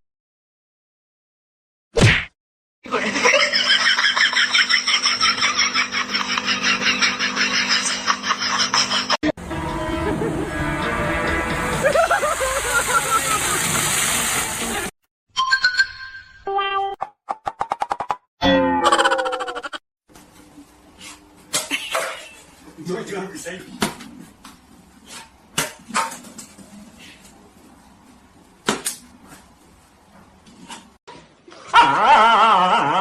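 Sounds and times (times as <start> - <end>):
person laughing hard: 2.9 - 9.3, 11.8 - 13.7, 18.8 - 19.8, 31.6 - 33.0.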